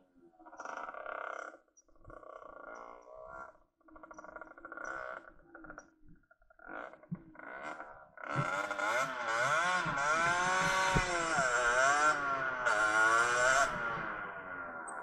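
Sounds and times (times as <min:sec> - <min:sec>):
two-stroke motorcycle engine revving: 0:06.7 - 0:15.0.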